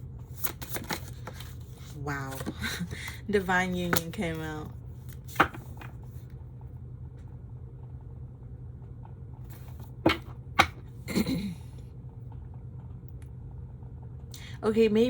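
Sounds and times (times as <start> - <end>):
cards tapped on table: 5.2 - 5.9, 9.5 - 10.8.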